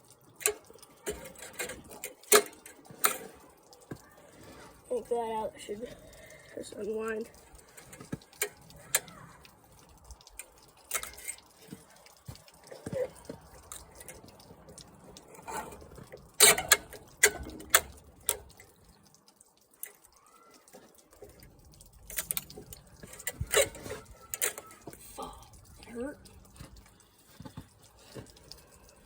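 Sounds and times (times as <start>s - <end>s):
hand tools clinking on metal: 0.4s - 18.6s, 22.0s - 25.2s.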